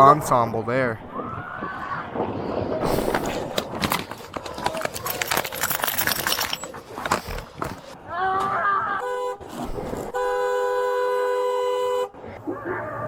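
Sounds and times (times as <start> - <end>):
two-note car horn blast: 9.0 - 12.2.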